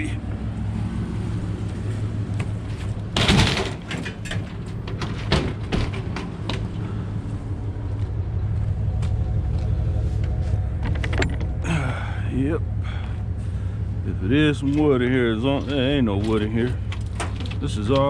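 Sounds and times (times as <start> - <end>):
low engine hum: 0.0 - 18.0
metal scrap scraping clatter: 2.7 - 6.3.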